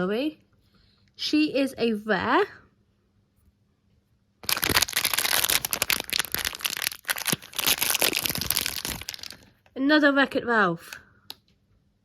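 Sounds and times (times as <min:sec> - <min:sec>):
plastic wrapper crinkling and tearing: 0:04.4 - 0:09.7.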